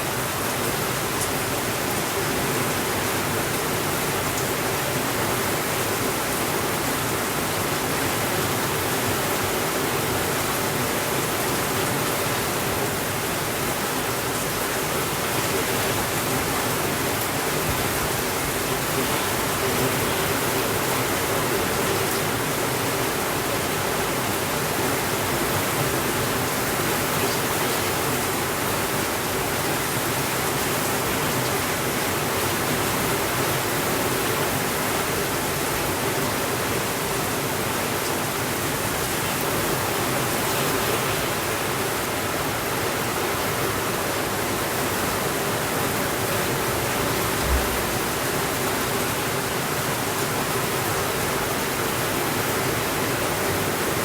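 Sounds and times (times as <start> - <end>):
heavy rain on a window: 0.0 - 54.0
soft low thump: 47.2 - 48.4.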